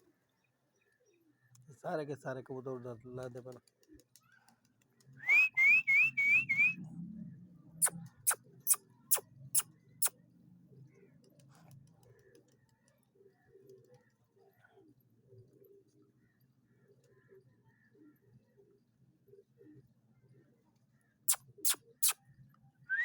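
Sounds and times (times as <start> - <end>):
person whistling rising notes: 5.3 - 6.8
sharp clicks: 21.3 - 22.2.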